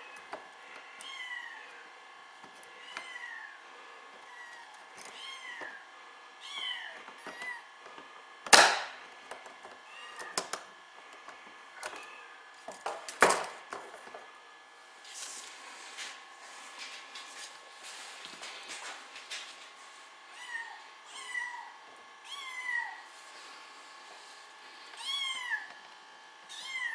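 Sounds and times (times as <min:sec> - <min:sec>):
sharp cracks: 0:08.5 - 0:09.0
kitten meowing: 0:20.4 - 0:23.0, 0:25.0 - 0:25.7, 0:26.5 - 0:26.9.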